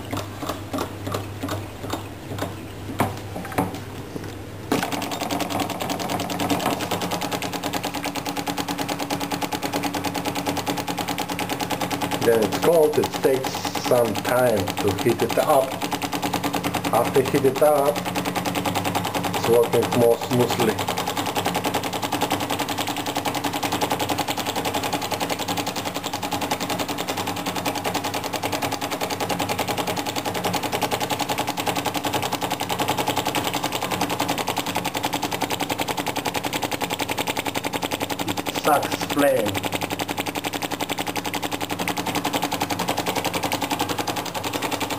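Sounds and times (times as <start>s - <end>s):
model engine clattering: 11.3s - 16.3s, 16.9s - 18.0s, 22.4s - 44.9s.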